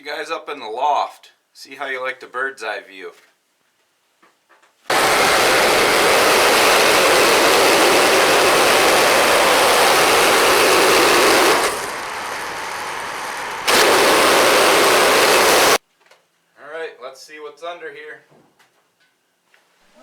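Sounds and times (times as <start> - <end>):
band sawmill cutting log: 4.9 - 15.8.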